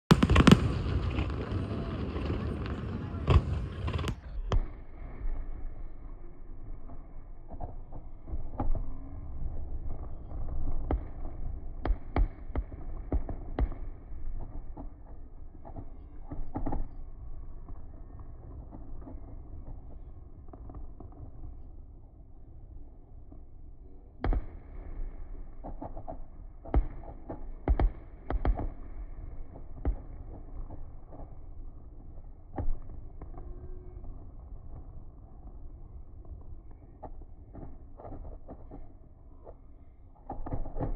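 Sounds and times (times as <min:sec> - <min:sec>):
fireworks bangs: 0:00.1 - 0:05.8.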